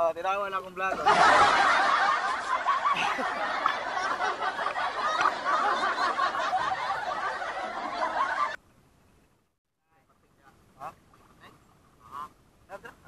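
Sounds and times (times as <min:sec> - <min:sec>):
cackling laughter-like voices: 0:00.9 - 0:08.6.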